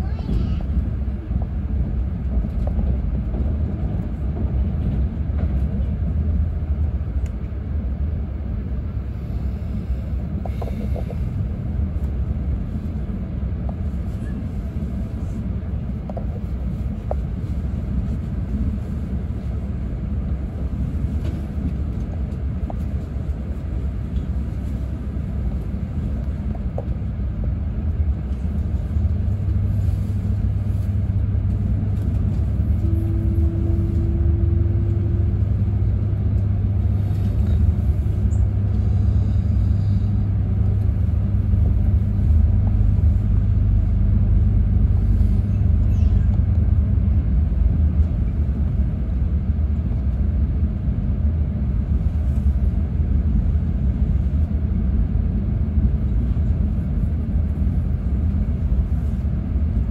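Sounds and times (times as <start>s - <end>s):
low hum: 0.0s - 59.9s
train running low rumble: 0.0s - 59.9s.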